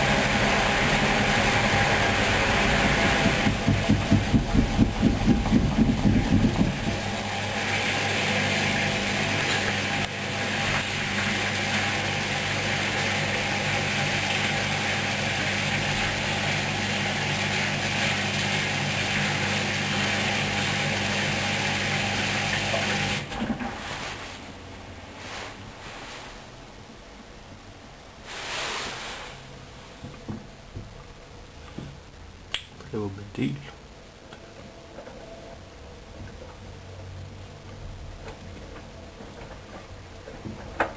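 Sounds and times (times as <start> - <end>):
washing machine churning: 0.0 - 24.8
washing machine motor hum: 0.0 - 25.8.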